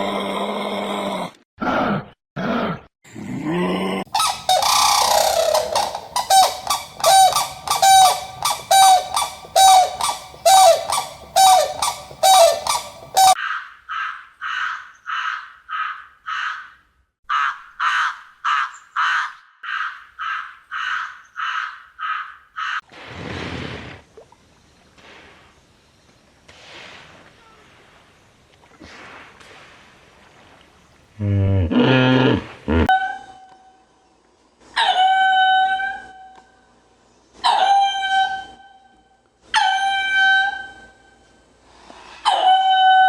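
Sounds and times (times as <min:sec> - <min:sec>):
farmyard birds honking: 0:04.2 - 0:13.4
short thin bird calls: 0:04.2 - 0:13.4.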